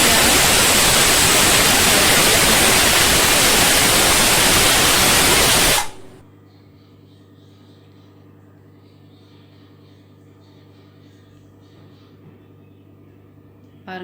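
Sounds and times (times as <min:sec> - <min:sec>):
pressure cooker steam hissing: 0:00.0 - 0:06.2.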